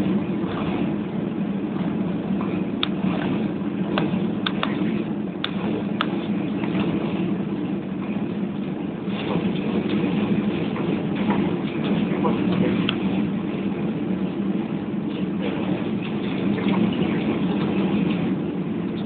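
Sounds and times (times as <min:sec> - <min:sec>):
aircraft cabin hum: 0:00.0 - 0:19.0
sharp clicks: 0:04.0 - 0:04.8.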